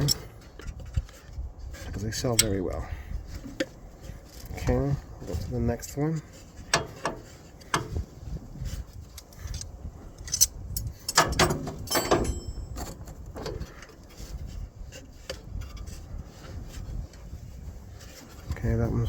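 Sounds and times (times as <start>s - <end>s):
wrench clinking on metal bolts: 0.0s - 0.3s, 9.2s - 13.0s.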